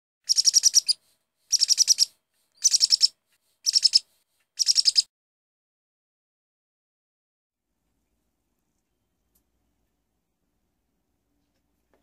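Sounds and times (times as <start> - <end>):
bird twittering chirps: 0.3 - 4.0, 4.6 - 5.1.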